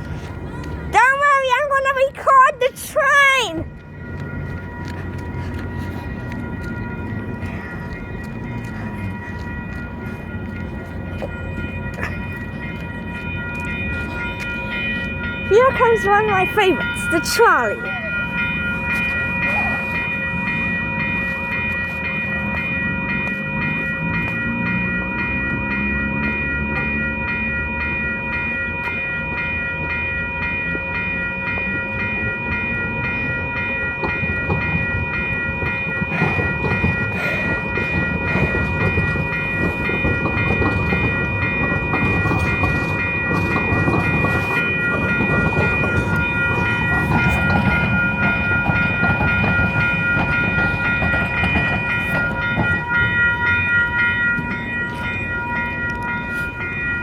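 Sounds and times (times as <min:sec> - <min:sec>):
trolley wheels clacking on rails: 0:00.0 - 0:57.0.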